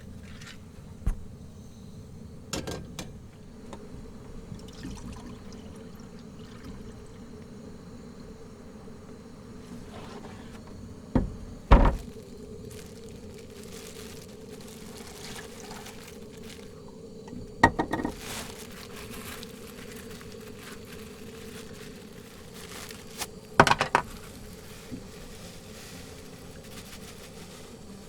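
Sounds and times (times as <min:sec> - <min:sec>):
faint steady hum: 0:00.0 - 0:28.0
cookware and dishes clattering: 0:23.6 - 0:24.1.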